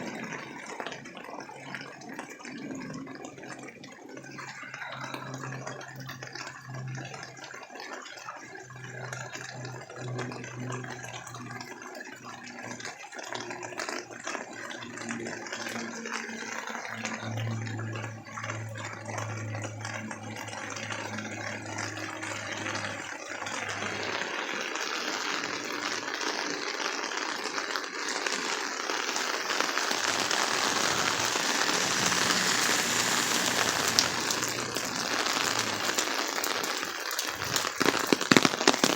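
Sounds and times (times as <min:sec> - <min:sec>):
heavy rain falling: 0:27.3 - 0:38.9
low hum: 0:29.8 - 0:36.2.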